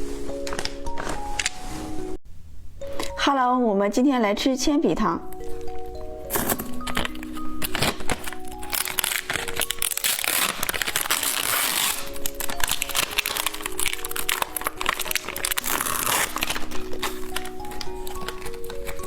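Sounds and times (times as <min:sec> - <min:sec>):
background music: 0:00.0 - 0:02.2, 0:02.8 - 0:19.0
plastic wrapper crinkling: 0:00.0 - 0:02.2, 0:05.3 - 0:19.0.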